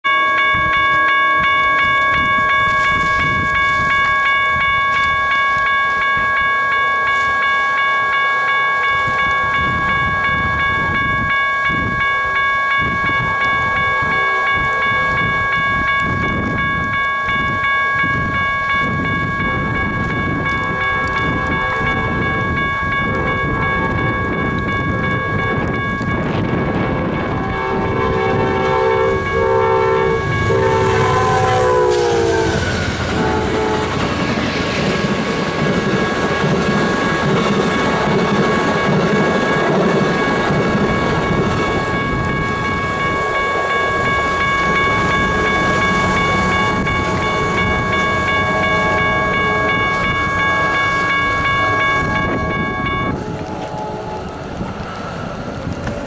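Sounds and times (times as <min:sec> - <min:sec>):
level crossing bell ringing: 0:00.0 - 0:34.0, 0:35.8 - 0:53.7
approaching train rumble: 0:08.8 - 0:56.0.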